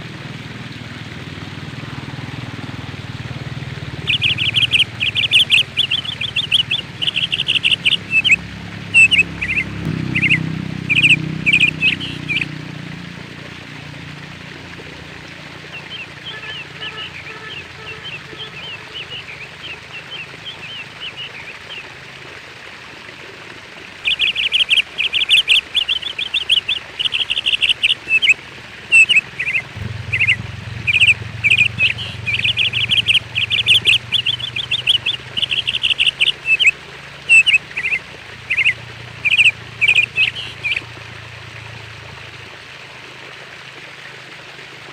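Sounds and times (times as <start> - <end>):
small birds chirping: 3.9 - 12.5, 15.7 - 21.9, 24.0 - 40.9
low steady hum: 25.0 - 42.4.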